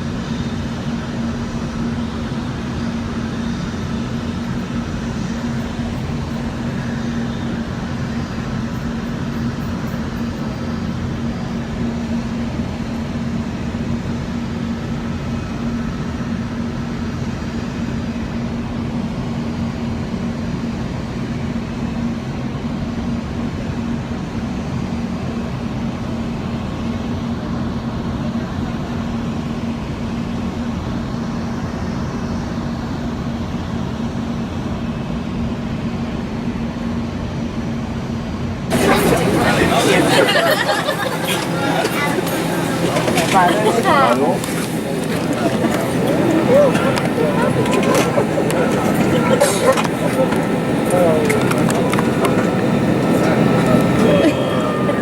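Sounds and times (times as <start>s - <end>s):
aircraft cabin low drone: 0.0s - 55.0s.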